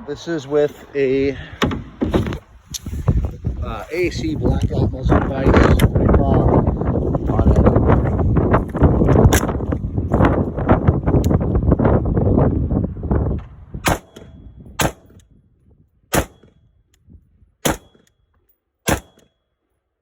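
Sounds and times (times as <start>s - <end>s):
rifle shots: 13.8s - 15.2s, 16.1s - 16.6s, 17.6s - 18.1s, 18.8s - 19.4s.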